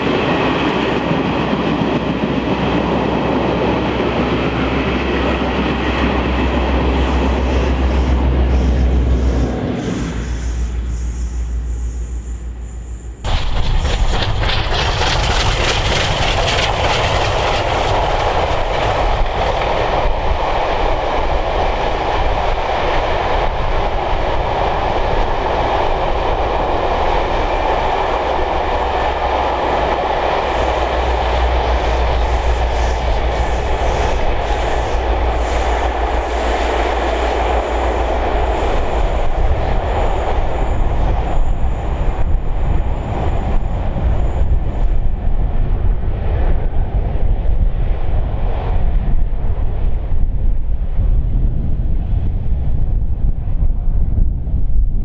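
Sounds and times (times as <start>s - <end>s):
train wheels rolling on rail: 0.0s - 55.0s
low rumble: 3.5s - 22.7s.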